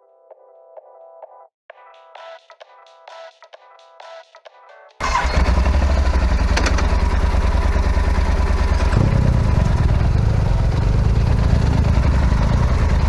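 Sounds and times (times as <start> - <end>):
motorcycle engine running: 5.0 - 13.0.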